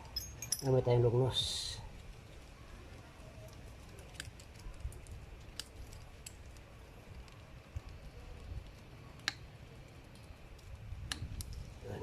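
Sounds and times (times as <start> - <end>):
pliers clicking on metal chain: 0.0 - 0.8.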